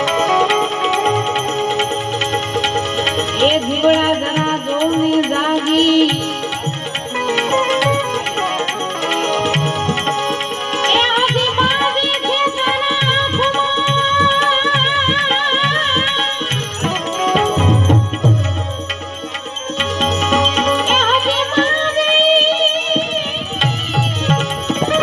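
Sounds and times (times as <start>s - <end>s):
hand drum beat: 0.0s - 21.5s
wavering melody instrument: 0.0s - 25.0s.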